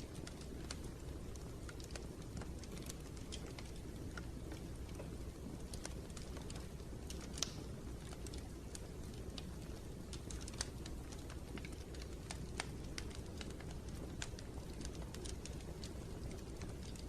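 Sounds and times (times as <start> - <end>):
low steady rumble: 0.0 - 17.0
wood fire crackling: 0.0 - 17.0.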